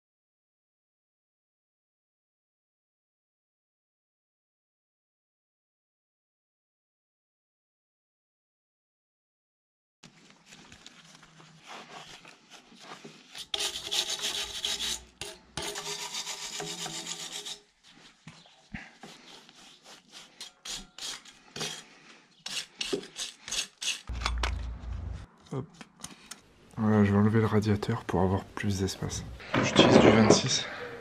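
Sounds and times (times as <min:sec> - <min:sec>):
hand scrubbing metal casing: 0:12.5 - 0:21.9.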